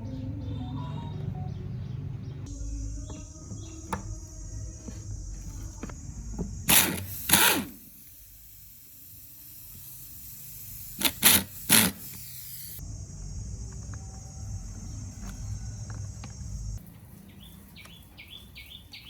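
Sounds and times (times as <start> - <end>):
hissing spray bursts: 6.6 - 12.8.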